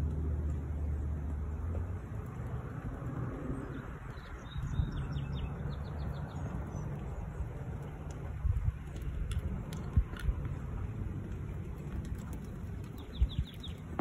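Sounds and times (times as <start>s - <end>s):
steady low rumble: 0.0s - 14.0s
bird chirping: 3.6s - 7.6s, 12.9s - 14.0s.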